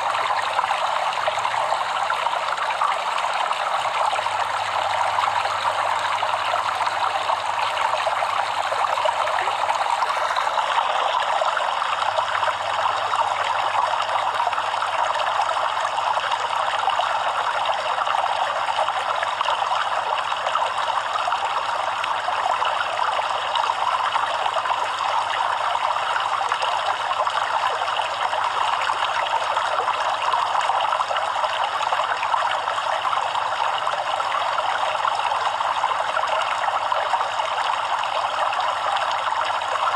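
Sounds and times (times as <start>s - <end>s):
stream babbling: 0.0s - 25.5s.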